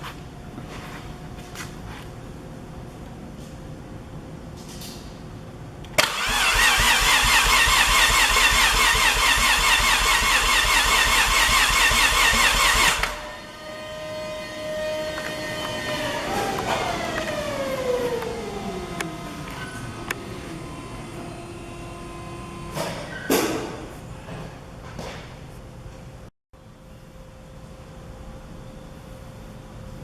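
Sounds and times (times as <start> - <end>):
starter motor cranking engine: 6.0 - 13.3, 14.9 - 22.8.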